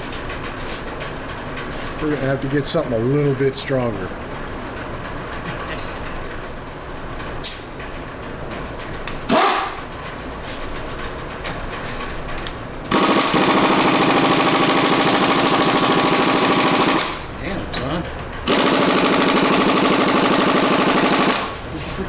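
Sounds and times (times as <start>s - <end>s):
impact wrench hammering: 9.3s - 9.8s, 12.9s - 17.3s, 18.4s - 21.6s.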